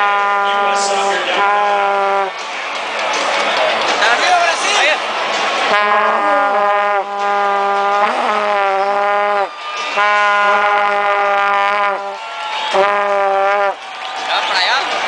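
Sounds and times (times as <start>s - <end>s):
vuvuzela blasts: 0.0s - 2.7s, 5.6s - 14.1s.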